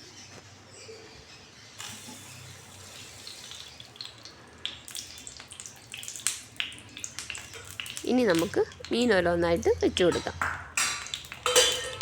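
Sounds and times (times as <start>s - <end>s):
oil sizzling in hot pan: 1.8s - 9.2s, 10.1s - 12.0s
oil popping and crackling: 1.8s - 12.0s.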